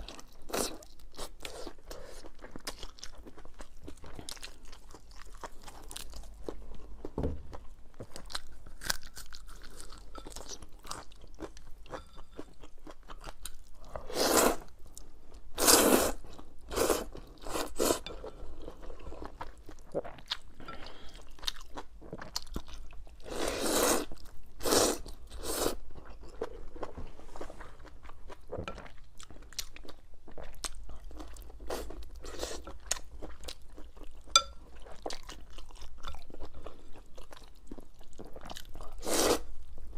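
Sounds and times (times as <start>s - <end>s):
chewing with wet clicks: 0.0s - 6.8s, 8.0s - 13.8s, 18.1s - 23.2s, 27.8s - 39.0s.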